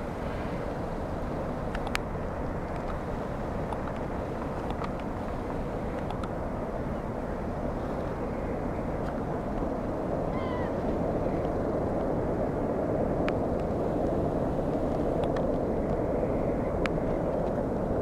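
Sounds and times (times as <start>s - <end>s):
low background rumble: 0.0s - 18.0s
gull call: 10.3s - 10.8s.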